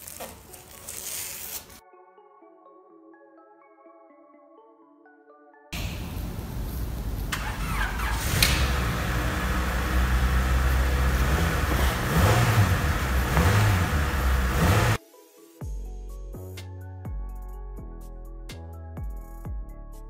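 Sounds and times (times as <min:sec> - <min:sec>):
car engine revving: 0:05.8 - 0:15.0.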